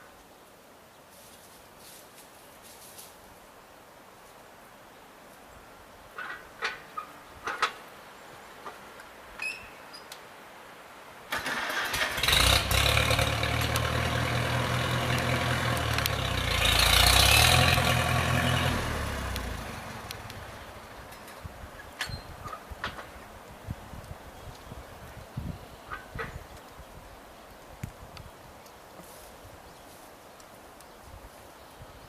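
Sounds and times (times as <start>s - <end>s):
tractor engine starting and running: 11.3s - 21.3s.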